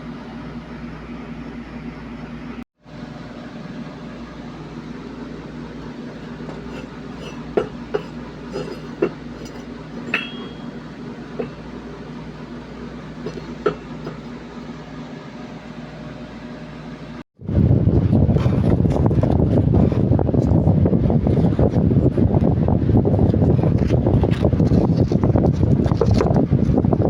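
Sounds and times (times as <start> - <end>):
steady low hum: 0.0 - 27.0
metallic clinks and taps: 9.4 - 10.7.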